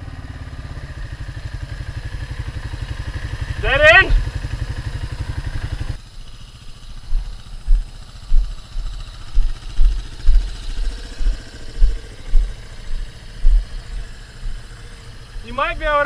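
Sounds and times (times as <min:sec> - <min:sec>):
dirt bike engine idling: 0:00.0 - 0:16.0
deep thumps: 0:07.0 - 0:14.7.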